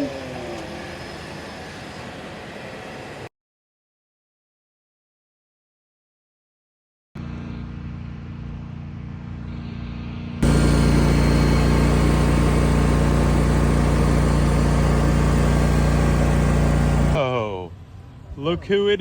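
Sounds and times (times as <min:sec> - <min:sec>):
vehicle engine droning: 0:07.2 - 0:17.2.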